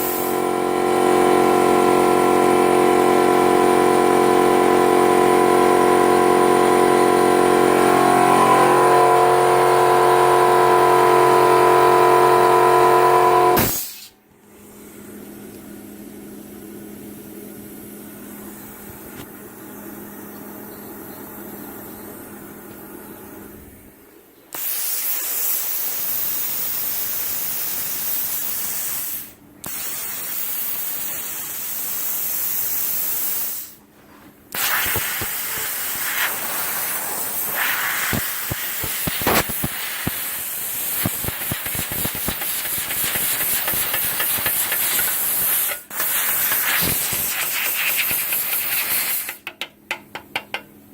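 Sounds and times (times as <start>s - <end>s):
plasma cutter hissing: 0.0s - 0.3s, 13.4s - 14.2s, 24.5s - 33.8s, 34.5s - 49.4s
low hum: 0.4s - 13.7s
arc crackling and popping: 34.6s - 45.5s.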